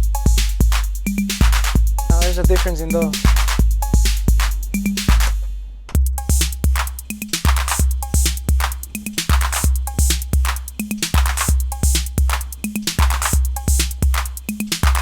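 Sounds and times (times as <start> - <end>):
hi-hat ticks: 0.0 - 5.3
booming kick drum: 0.0 - 6.8.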